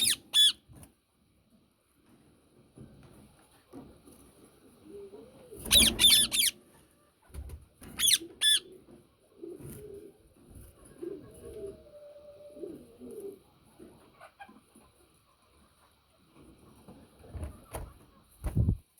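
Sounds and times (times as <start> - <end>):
parakeet shrill screeches: 0.0 - 0.6, 5.7 - 6.5, 8.0 - 8.6.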